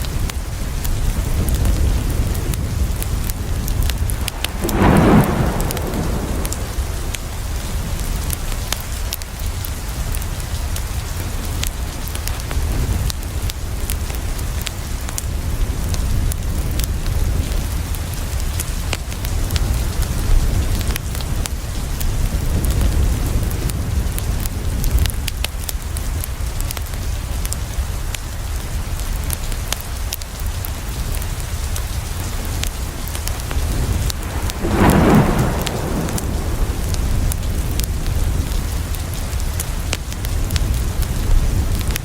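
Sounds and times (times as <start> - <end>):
heavy rain: 0.0 - 42.0
low rumble: 2.6 - 8.3, 33.2 - 38.8.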